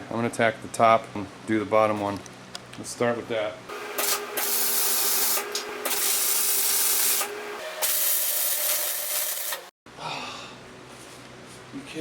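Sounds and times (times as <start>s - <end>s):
welding arc crackling and hissing: 3.9s - 9.7s.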